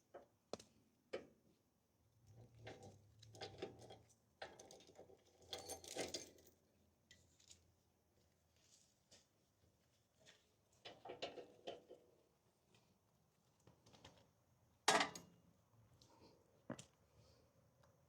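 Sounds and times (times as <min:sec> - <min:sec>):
small knocks and clinks: 0:02.7 - 0:07.2.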